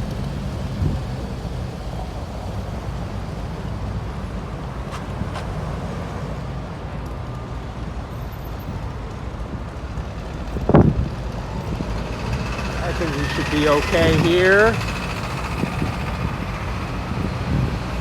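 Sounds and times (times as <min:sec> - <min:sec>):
rumble of passing cars: 0:00.0 - 0:18.0.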